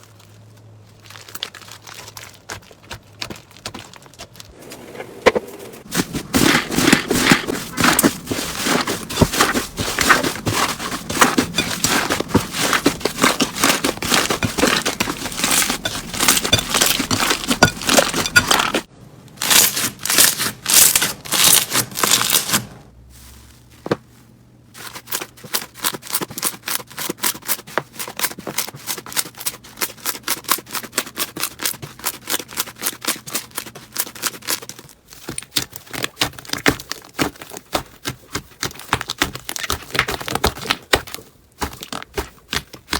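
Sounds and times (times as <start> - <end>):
slime crackling and popping: 0.9 - 4.6, 19.4 - 22.6.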